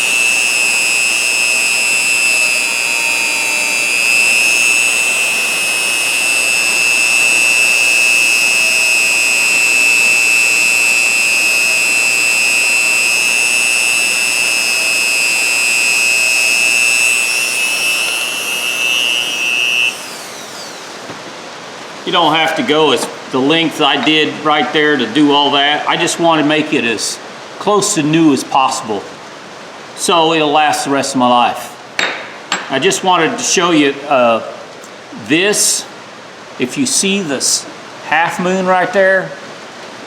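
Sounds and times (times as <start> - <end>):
rotary tool high-pitched whine: 0.0 - 23.0.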